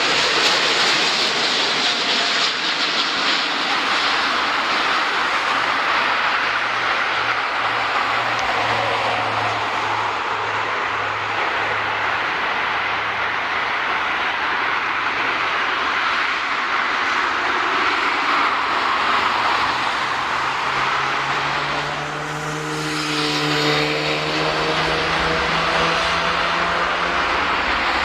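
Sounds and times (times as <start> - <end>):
loud jet engine noise: 0.0 - 28.0.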